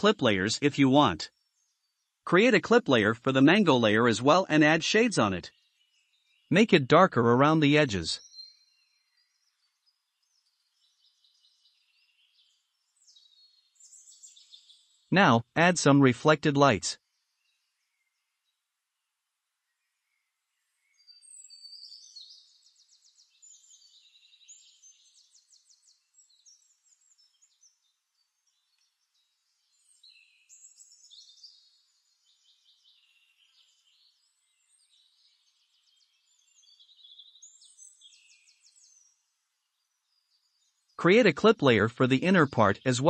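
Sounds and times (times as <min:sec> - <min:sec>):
birds trilling and chirping: 0:20.9 - 0:43.0.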